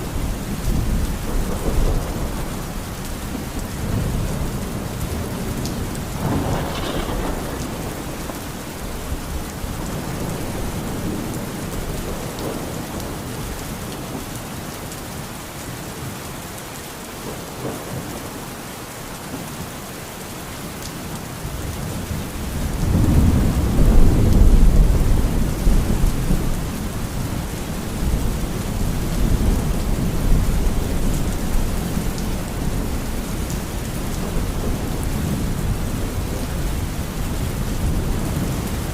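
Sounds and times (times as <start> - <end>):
heavy rain: 0.0 - 38.9
rolling thunder: 0.5 - 13.6, 21.7 - 38.9.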